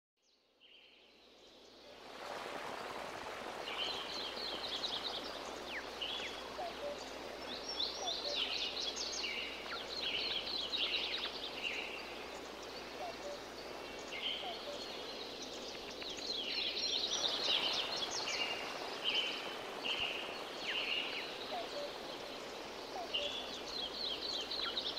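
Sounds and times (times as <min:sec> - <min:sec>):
steady background hiss: 0:00.5 - 0:24.9
birds chirping trills: 0:03.9 - 0:24.9.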